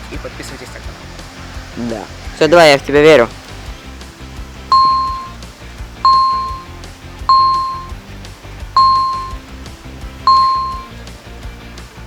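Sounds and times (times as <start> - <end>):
background music: 0.0 - 12.0
bell-like ding: 4.7 - 5.3, 6.1 - 6.7, 7.3 - 7.9, 8.8 - 9.4, 10.3 - 10.9.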